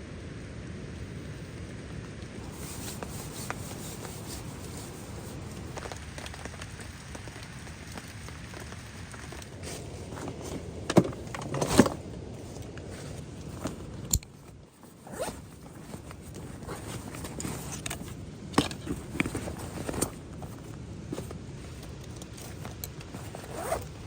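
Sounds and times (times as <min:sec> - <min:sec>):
steady rain falling: 0:00.0 - 0:11.3.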